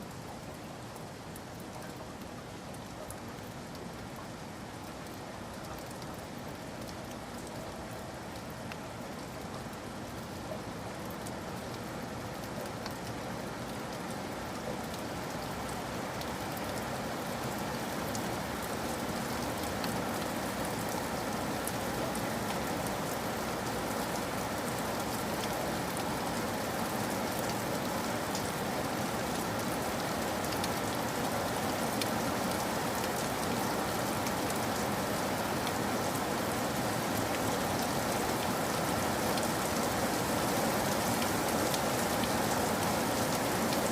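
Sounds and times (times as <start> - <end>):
rain falling: 0.0 - 43.9.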